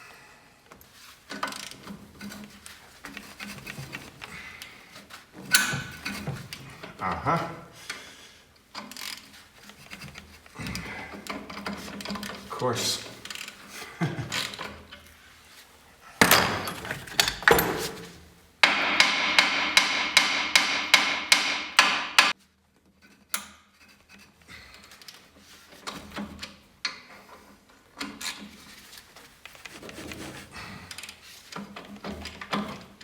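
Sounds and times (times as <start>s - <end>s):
hammer striking metal: 18.6s - 22.3s.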